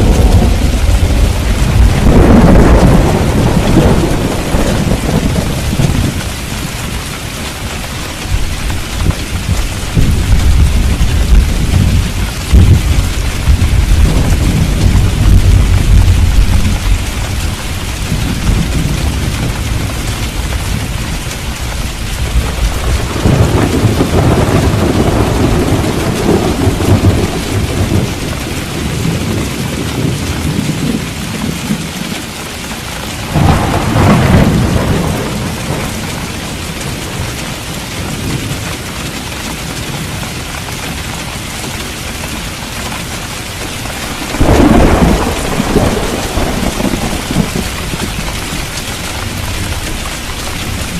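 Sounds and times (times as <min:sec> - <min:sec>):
sharp thunder claps: 0:00.0 - 0:06.7, 0:08.3 - 0:21.0, 0:22.2 - 0:31.8, 0:33.2 - 0:36.5, 0:43.9 - 0:50.9
low thunder rumble: 0:00.0 - 0:32.0, 0:33.2 - 0:38.8, 0:43.4 - 0:50.9
heavy rain: 0:00.0 - 0:50.9.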